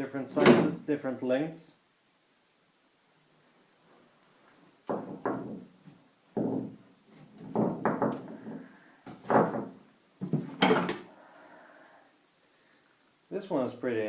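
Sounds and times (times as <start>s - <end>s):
heavy metal parts clunking: 6.4s - 11.1s.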